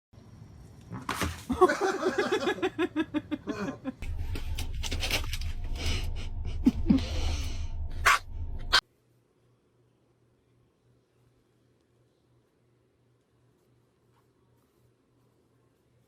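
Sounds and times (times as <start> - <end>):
person laughing: 1.5 - 4.0, 5.8 - 7.7
low rumble: 4.0 - 8.8.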